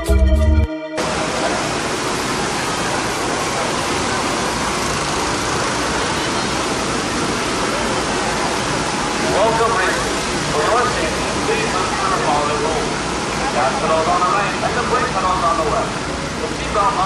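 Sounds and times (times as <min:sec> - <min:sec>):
organ music: 0:00.0 - 0:01.1
steady rushing noise: 0:01.0 - 0:17.0.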